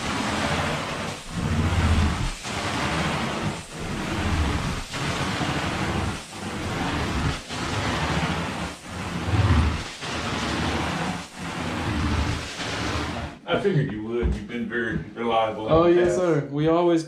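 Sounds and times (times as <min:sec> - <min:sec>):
carpet extraction wand hissing: 0:00.0 - 0:13.3.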